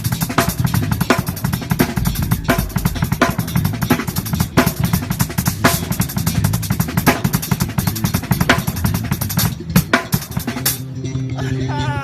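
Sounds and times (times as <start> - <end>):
bass drum and snare strokes: 0.0 - 10.8
cymbal crashes: 1.3 - 6.4.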